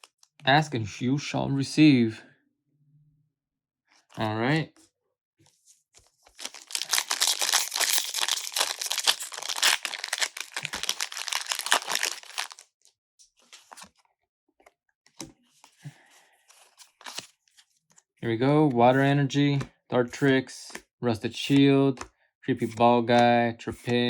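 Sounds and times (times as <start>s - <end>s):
foil wrapper tearing and crinkling: 6.4s - 12.7s.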